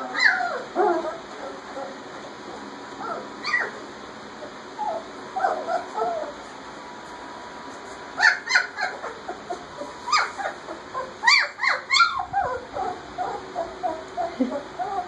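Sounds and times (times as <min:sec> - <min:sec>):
puppies whimpering and squealing: 0:00.0 - 0:06.5, 0:08.2 - 0:15.0.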